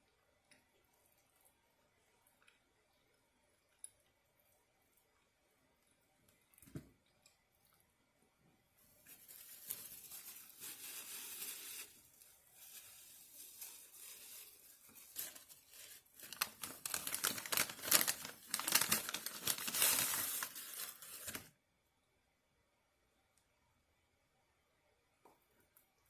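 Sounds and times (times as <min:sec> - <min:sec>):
food packaging crinkling and tearing: 0:09.0 - 0:21.5.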